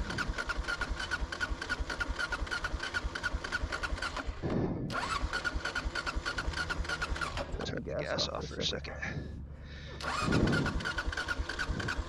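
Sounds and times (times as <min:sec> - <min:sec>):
motorcycle engine cranking on starter: 0:00.0 - 0:07.8, 0:10.0 - 0:12.0.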